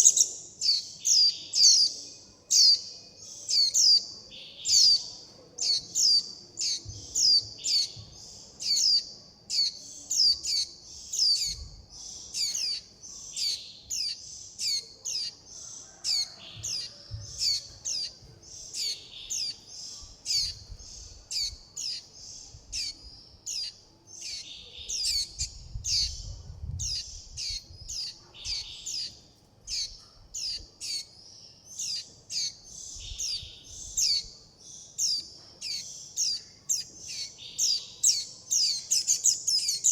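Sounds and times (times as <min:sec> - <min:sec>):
young birds chirping: 0:00.0 - 0:39.9.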